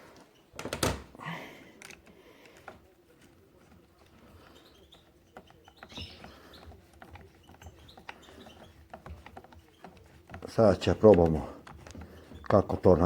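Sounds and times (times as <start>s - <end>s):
clicks and taps of parts handled: 1.8s - 4.3s, 6.6s - 12.8s.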